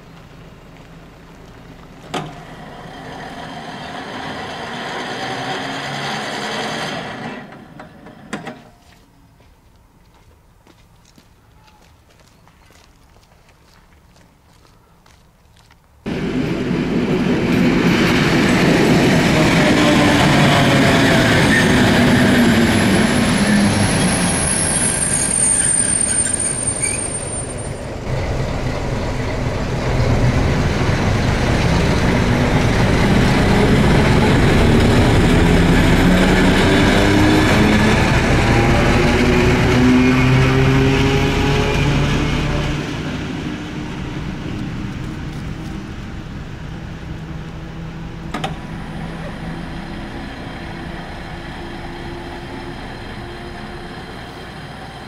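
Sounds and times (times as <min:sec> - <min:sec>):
locomotive engine passing: 0:00.0 - 0:08.4, 0:16.0 - 0:55.0
train wheels rumbling and clattering: 0:01.6 - 0:08.7, 0:16.1 - 0:55.0
high wheel squeal: 0:02.3 - 0:08.0, 0:18.8 - 0:28.1.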